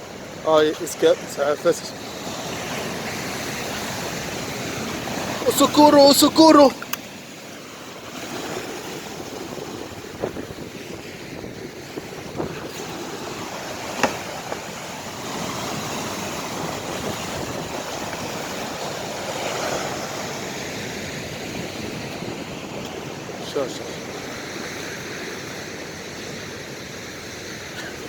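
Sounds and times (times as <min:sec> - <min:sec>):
sea surf washing on shore: 0:00.0 - 0:28.0
wind on microphone: 0:07.5 - 0:23.4
sharp knocks: 0:13.9 - 0:14.7.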